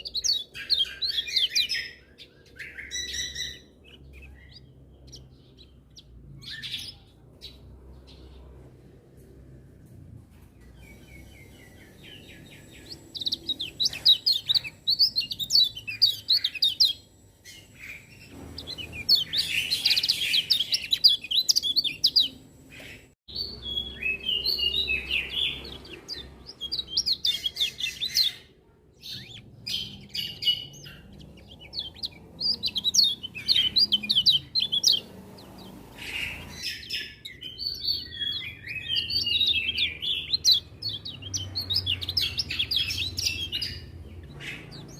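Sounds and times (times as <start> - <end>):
bird twittering song: 0.0 - 8.9, 10.3 - 44.9.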